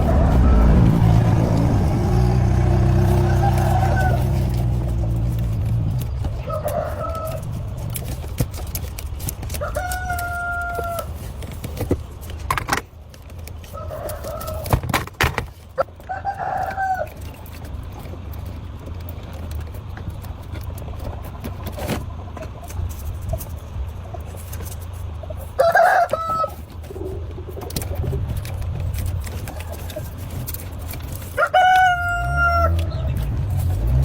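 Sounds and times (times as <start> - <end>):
rooster crowing: 0.0 - 5.3, 6.4 - 7.7, 9.6 - 11.1, 25.6 - 26.6, 31.4 - 32.9
steady low rumble: 0.0 - 8.8.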